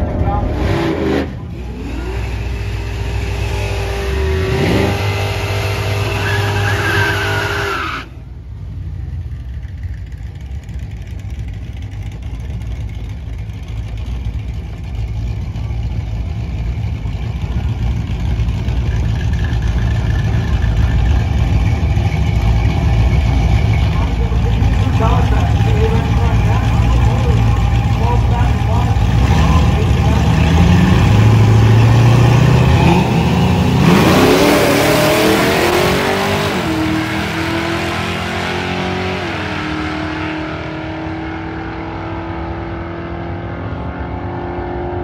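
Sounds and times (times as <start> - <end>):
engine revving high: 0.0 - 7.7, 23.4 - 45.0
engines rumbling at low revs: 0.0 - 45.0
tyre squeal: 6.0 - 8.2.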